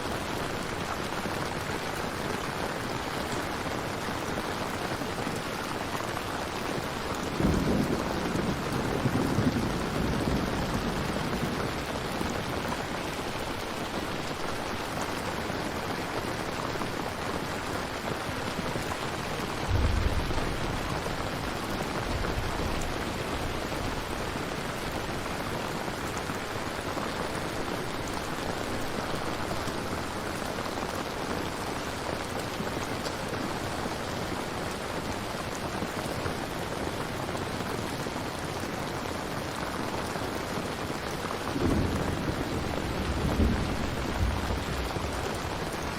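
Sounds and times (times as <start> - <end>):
heavy rain: 0.0 - 45.9
thunder rumble: 7.3 - 14.5, 18.9 - 25.1, 41.5 - 45.9.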